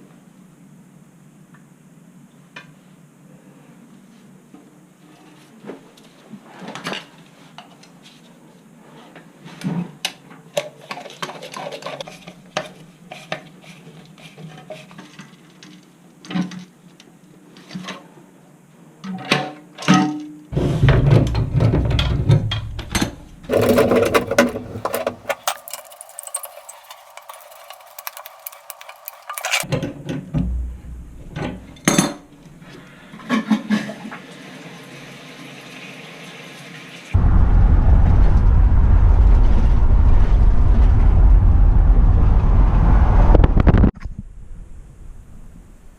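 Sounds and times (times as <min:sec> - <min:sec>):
hard objects clinking and knocking: 0:23.5 - 0:29.7.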